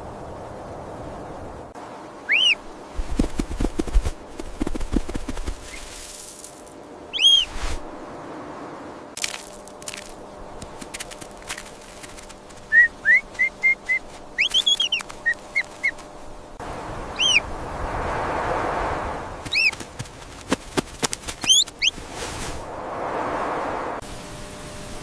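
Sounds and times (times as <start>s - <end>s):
high bird-like chirps: 2.2s - 2.7s, 7.1s - 7.6s, 12.7s - 16.0s, 17.1s - 17.4s, 19.4s - 19.8s, 21.4s - 22.0s
squeaky arching calls: 2.2s - 2.8s, 7.1s - 7.6s, 12.6s - 16.1s, 17.1s - 17.5s, 19.5s - 19.8s, 21.4s - 22.0s
whooshing hiss: 2.3s - 9.1s, 14.2s - 25.0s.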